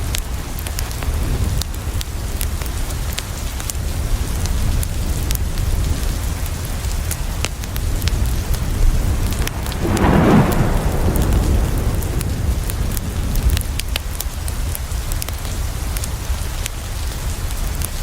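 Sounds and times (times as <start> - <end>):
rain on a window: 0.0 - 18.0
wood fire crackling: 6.8 - 18.0
thunder rolling: 8.0 - 14.2.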